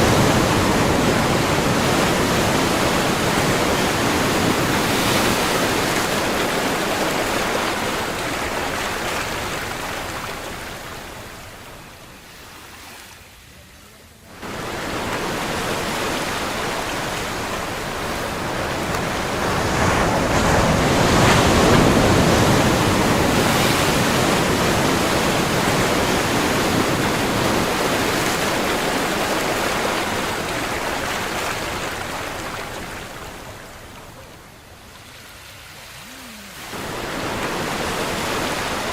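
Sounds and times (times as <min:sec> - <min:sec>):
ocean waves breaking: 0:00.0 - 0:38.9.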